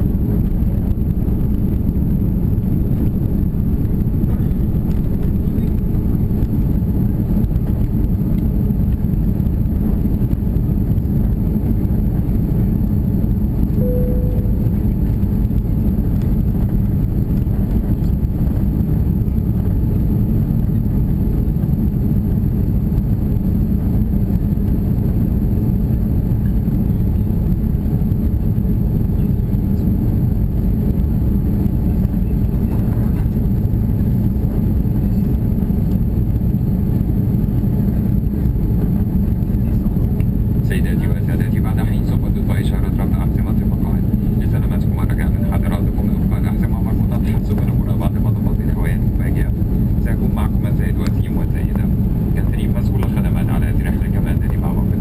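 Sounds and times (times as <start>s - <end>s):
airplane cabin roar: 0.0s - 55.0s
single tone: 13.8s - 15.0s.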